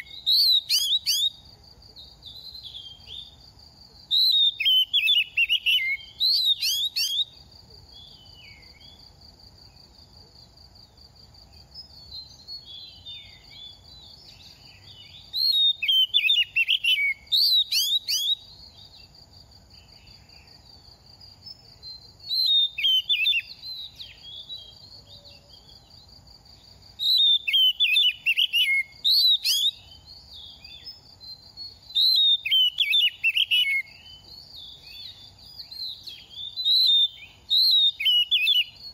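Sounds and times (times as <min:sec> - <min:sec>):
bird singing whistled phrases: 0:00.0 - 0:01.4, 0:04.1 - 0:07.4, 0:12.1 - 0:18.5, 0:22.2 - 0:25.4, 0:27.0 - 0:38.9.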